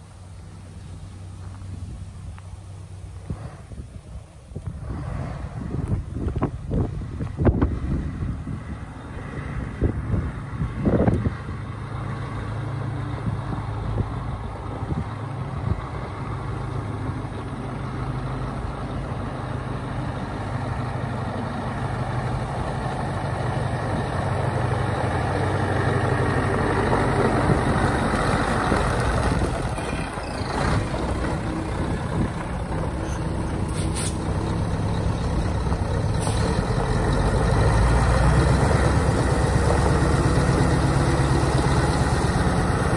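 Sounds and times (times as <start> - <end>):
truck diesel engine running: 4.7 - 42.9
short air hisses: 33.7 - 34.3, 36.2 - 36.6.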